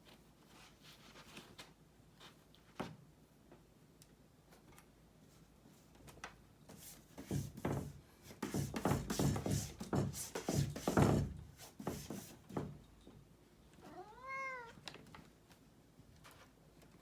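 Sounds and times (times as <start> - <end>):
cat scratching wooden desk: 6.8 - 12.7.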